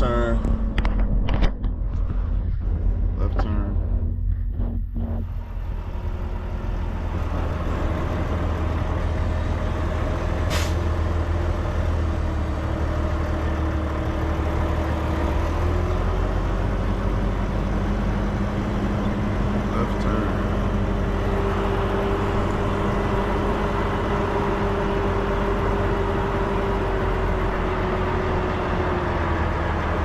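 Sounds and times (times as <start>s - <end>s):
truck diesel engine running: 0.0s - 30.0s
air brake hiss: 10.5s - 10.8s.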